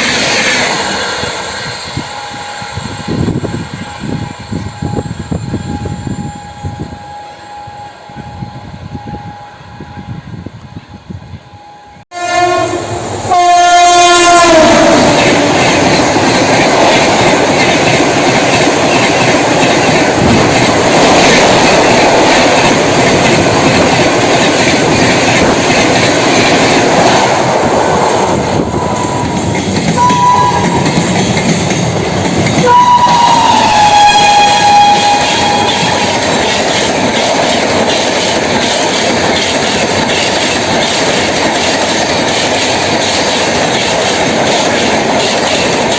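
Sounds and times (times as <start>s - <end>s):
train coaches clattering over track: 0.0s - 8.9s, 12.2s - 45.9s
train horn: 2.0s - 16.0s, 28.0s - 29.4s, 30.0s - 31.2s, 32.6s - 36.5s.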